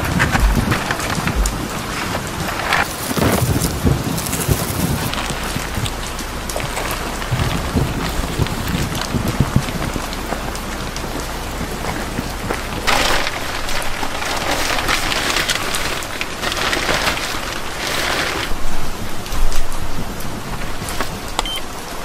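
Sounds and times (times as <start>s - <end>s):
knocks: 0.0s - 4.4s
plastic rain poncho rustling: 0.0s - 22.0s
steady rain falling: 0.0s - 22.0s.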